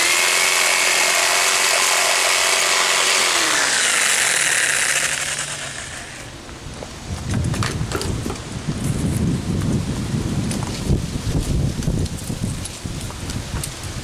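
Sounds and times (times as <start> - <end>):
electric power tool spinning: 0.0 - 6.4.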